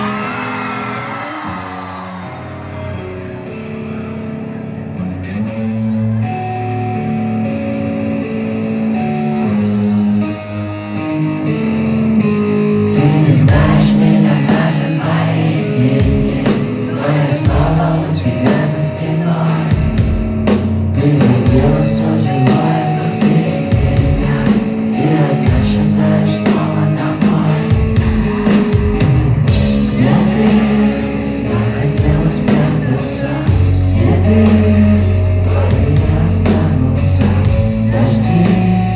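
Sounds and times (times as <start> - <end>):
live rock band playing: 0.0 - 38.9
person singing: 12.6 - 38.9.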